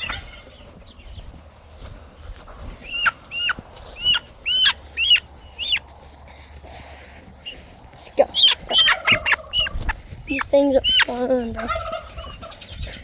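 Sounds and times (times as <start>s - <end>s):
guinea fowl calling: 0.0s - 1.3s, 2.8s - 5.9s, 7.4s - 13.0s.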